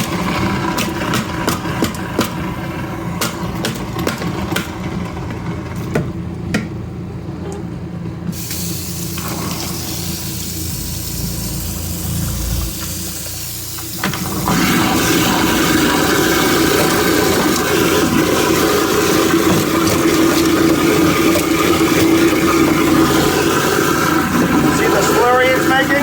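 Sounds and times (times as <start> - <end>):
garbage disposer grinding ice: 0.0 - 6.5, 8.3 - 26.0
running tap water: 8.4 - 26.0.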